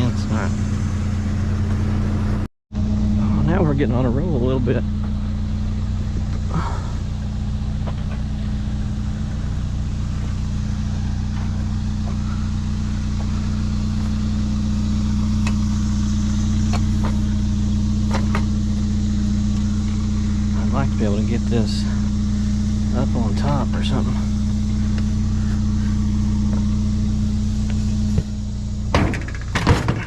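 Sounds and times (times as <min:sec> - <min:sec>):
vehicle engine idling: 0:00.0 - 0:30.0
sharp clicks and knocks: 0:18.1 - 0:18.6, 0:28.9 - 0:30.0.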